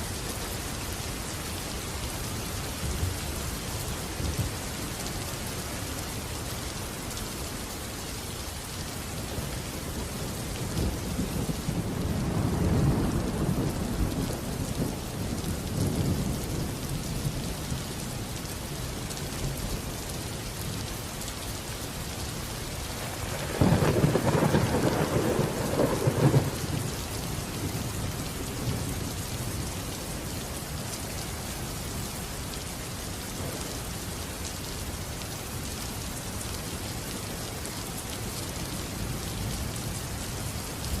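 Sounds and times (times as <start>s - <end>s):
steady rain: 0.0s - 41.0s
thunder rumbling: 23.0s - 28.9s.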